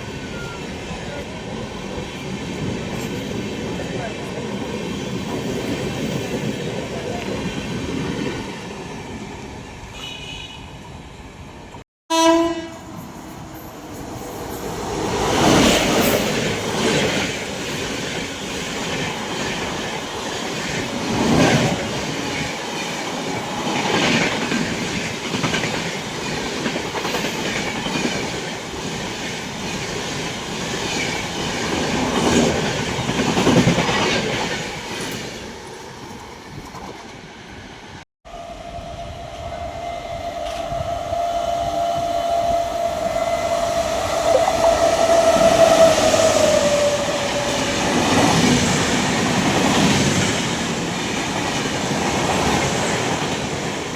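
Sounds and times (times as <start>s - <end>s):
train horn blast: 9.9s - 10.7s, 12.1s - 12.9s.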